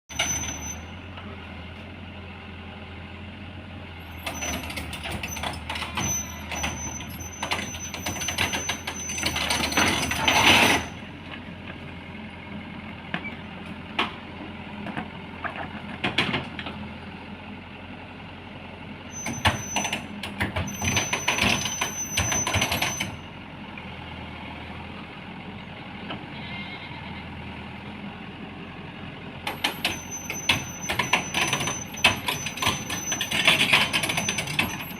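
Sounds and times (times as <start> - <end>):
thin high squeal: 0.1 - 1.0, 4.1 - 11.0, 19.1 - 20.1, 20.7 - 23.2, 29.6 - 34.9
heavy diesel machinery running: 0.1 - 34.9
metal clanking: 4.2 - 11.0, 29.5 - 34.9.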